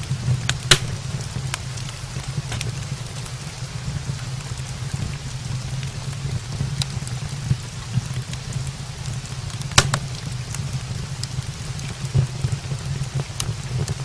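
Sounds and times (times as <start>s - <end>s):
steady rain: 0.0s - 14.0s
wood fire crackling: 0.0s - 14.0s.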